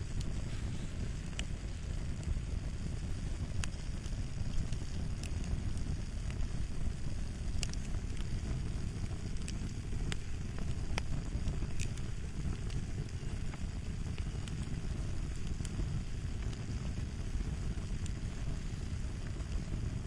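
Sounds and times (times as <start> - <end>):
fire crackling: 0.0 - 20.0
wood popping and snapping: 7.5 - 8.4, 9.3 - 12.7.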